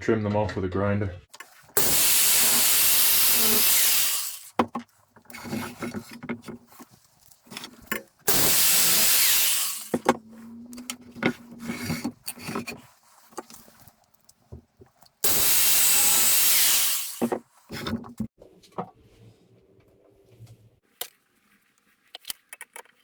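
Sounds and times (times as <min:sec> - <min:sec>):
grinder cutting bolts: 0:01.3 - 0:06.8, 0:07.4 - 0:12.8, 0:15.2 - 0:18.3
handling clicks and knocks: 0:04.5 - 0:08.4.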